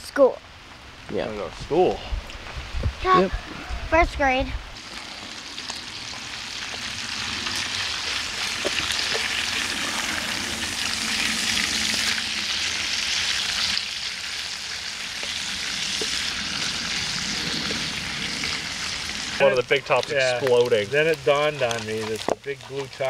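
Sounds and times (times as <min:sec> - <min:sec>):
food sizzling in a frying pan: 0:04.8 - 0:23.0.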